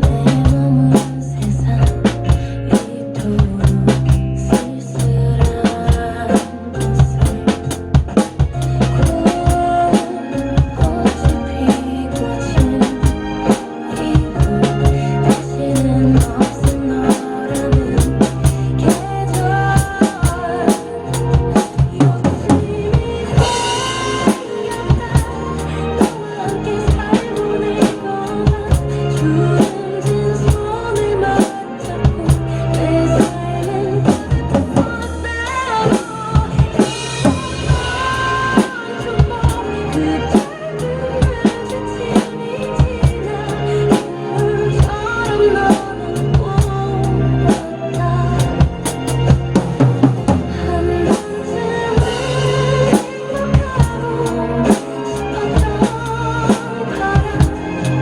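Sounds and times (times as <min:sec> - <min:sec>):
pop ballad with piano and strings: 0:00.0 - 0:58.0.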